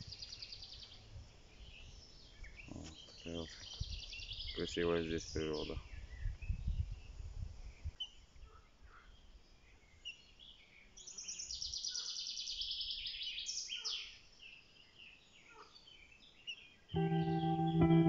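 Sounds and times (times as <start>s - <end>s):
guitar music: 17.0s - 18.0s.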